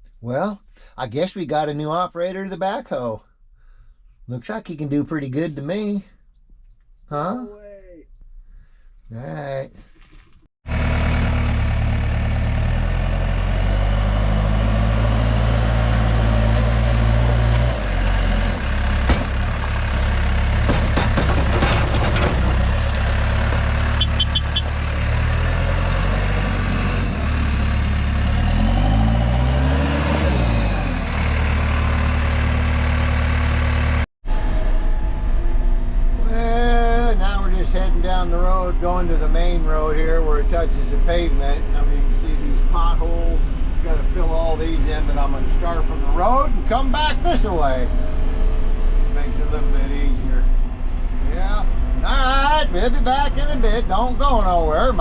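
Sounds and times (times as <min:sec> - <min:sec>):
backhoe engine running: 0:10.7 - 0:42.1.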